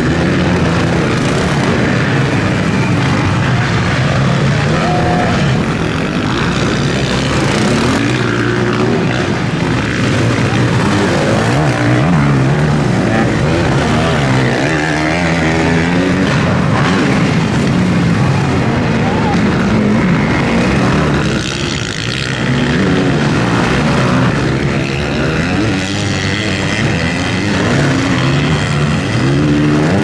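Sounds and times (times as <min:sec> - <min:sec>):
motocross bike engines revving: 0:00.0 - 0:30.0.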